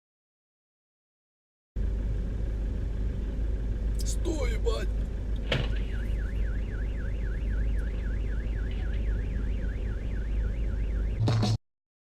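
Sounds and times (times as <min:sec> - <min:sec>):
car and road noise: 0:01.8 - 0:11.6
thump: 0:05.5 - 0:05.8
warbling siren: 0:05.5 - 0:11.6.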